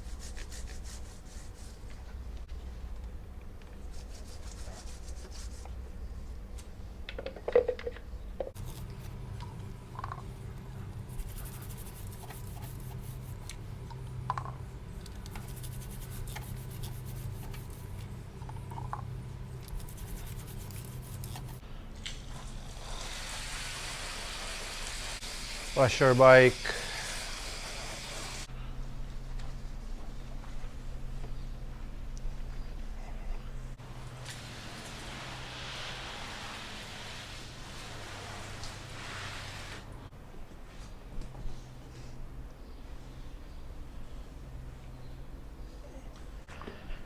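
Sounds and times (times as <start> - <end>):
scrubbing motorcycle chain: 11.0 - 13.5, 15.2 - 18.0, 19.7 - 21.6
steady hiss: 22.6 - 28.5, 33.8 - 40.1.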